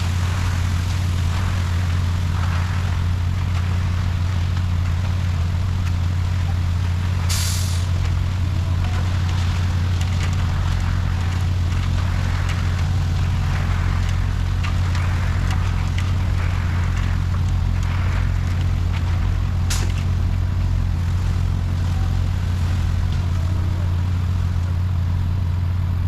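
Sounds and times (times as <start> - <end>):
diesel engine running: 0.0 - 26.0
air hiss: 7.3 - 7.9.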